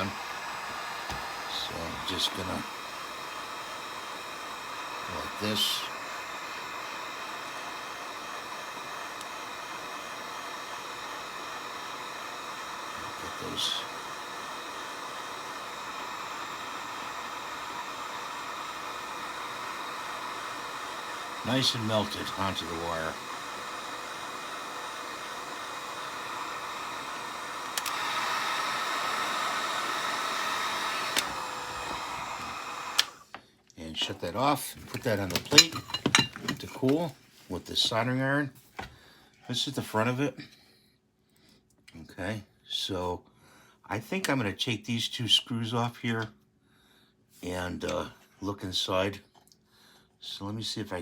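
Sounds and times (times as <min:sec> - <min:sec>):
heat gun blowing: 0:00.0 - 0:33.4, 0:34.0 - 0:38.0
heat gun switch click: 0:27.7 - 0:28.0, 0:31.0 - 0:33.2.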